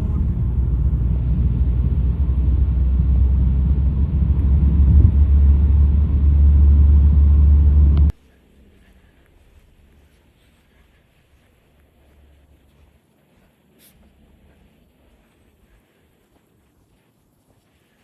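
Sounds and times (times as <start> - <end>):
loud low rumble: 0.0 - 8.2.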